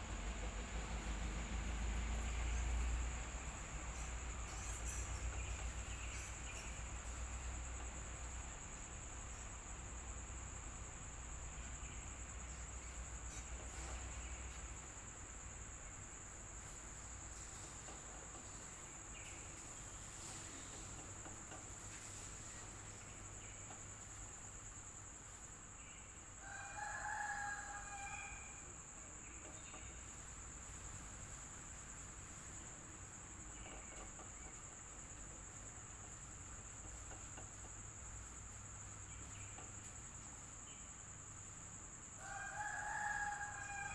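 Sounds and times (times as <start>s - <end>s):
electric fan humming: 0.0s - 25.3s
rooster crowing: 26.4s - 28.9s, 42.1s - 43.9s.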